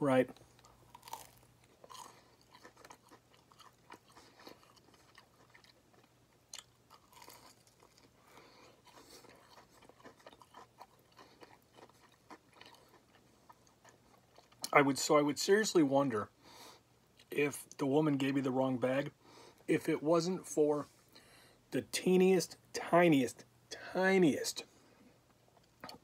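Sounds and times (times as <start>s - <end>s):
chewing crispy food: 0.3s - 14.8s.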